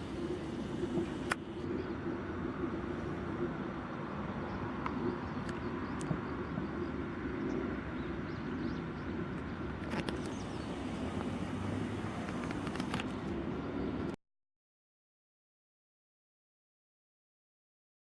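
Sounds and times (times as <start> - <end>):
vehicle rumble: 0.0 - 5.3, 9.8 - 14.2.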